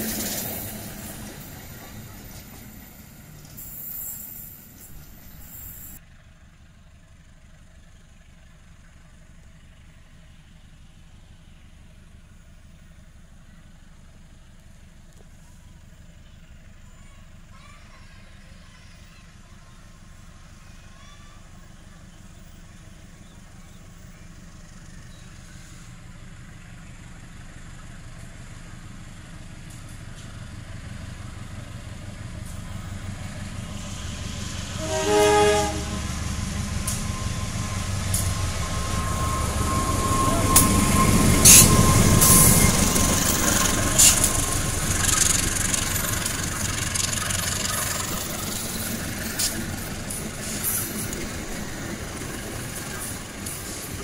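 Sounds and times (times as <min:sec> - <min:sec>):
diesel locomotive engine rumble: 0:00.0 - 0:54.0
locomotive horn: 0:34.7 - 0:43.0
wheels clicking over rail joints: 0:40.4 - 0:54.0.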